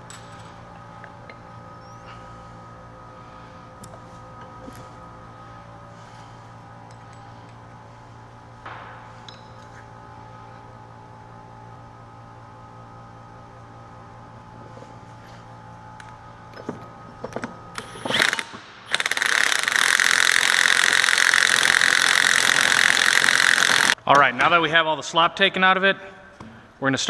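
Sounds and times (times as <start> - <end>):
power wrench running: 17.2 - 24.0.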